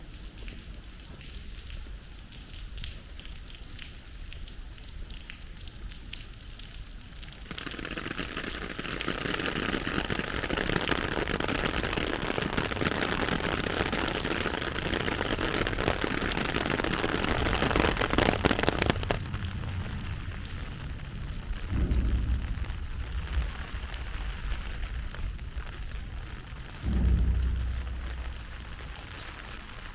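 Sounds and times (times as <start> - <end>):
heavy rain pattering: 0.0 - 29.9
low rumble: 18.9 - 29.9.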